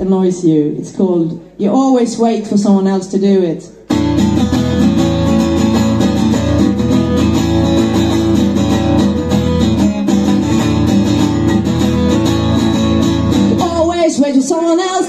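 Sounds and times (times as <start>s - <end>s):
live band playing: 3.9s - 13.9s
strummed guitars: 3.9s - 15.0s.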